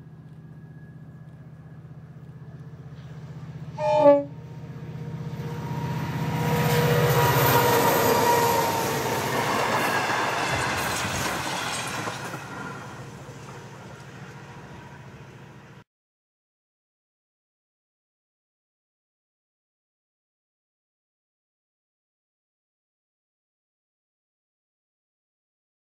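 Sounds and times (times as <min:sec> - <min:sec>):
locomotive engine drone: 0:00.0 - 0:15.8
train horn blast: 0:03.7 - 0:09.1
wheels clattering on rails: 0:06.6 - 0:15.4.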